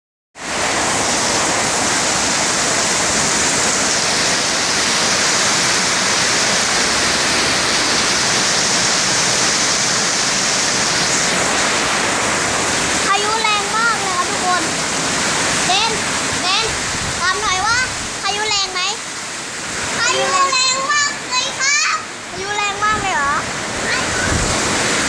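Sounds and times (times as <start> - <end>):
heavy rain pouring: 0.4 - 25.0.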